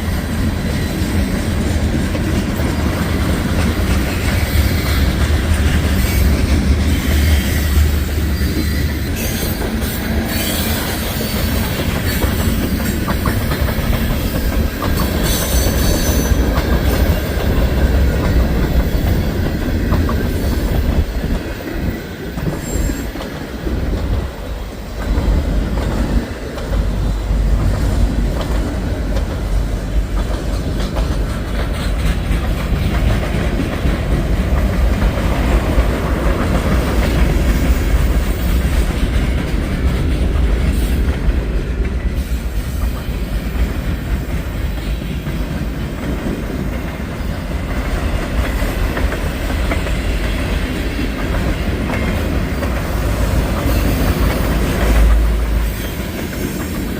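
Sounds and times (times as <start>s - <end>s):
freight train rumbling past: 0.0s - 56.9s
train wheels clacking on rails: 0.0s - 56.9s.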